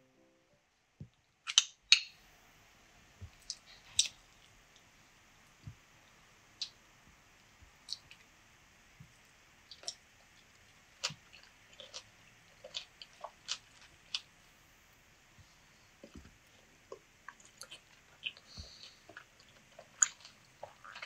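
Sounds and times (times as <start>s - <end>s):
person chewing: 9.6s - 14.5s, 16.0s - 21.0s.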